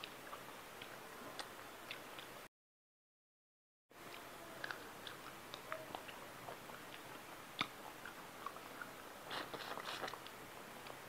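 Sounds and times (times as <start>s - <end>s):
person chewing food: 0.0s - 2.4s, 4.0s - 11.0s.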